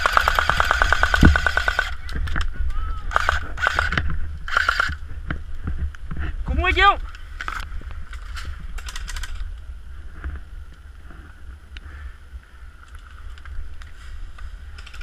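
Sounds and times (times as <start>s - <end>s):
airsoft gun fire: 0.0s - 2.0s
wind buffeting microphone: 0.0s - 15.0s.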